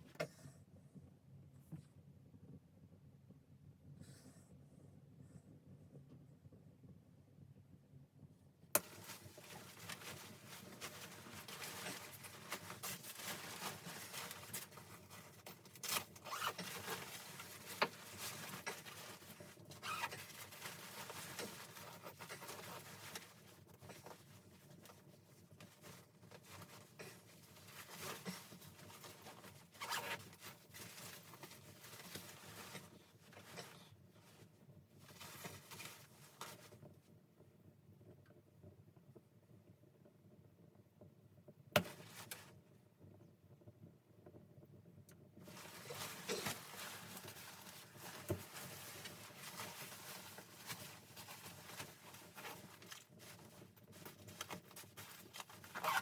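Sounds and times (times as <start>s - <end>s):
crinkling: 8.8s - 36.9s, 45.4s - 56.0s
rustling and scratching: 8.8s - 36.9s, 45.4s - 56.0s.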